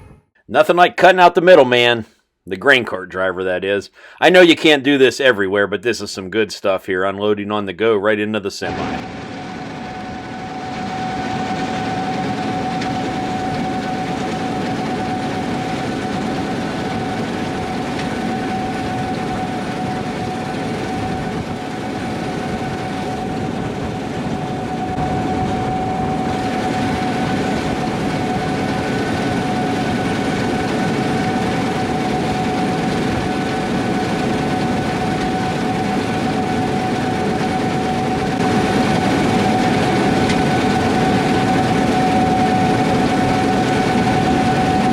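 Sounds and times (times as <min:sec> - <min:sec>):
combine harvester drone: 0:08.6 - 0:44.9
constant machine whine: 0:08.6 - 0:44.9.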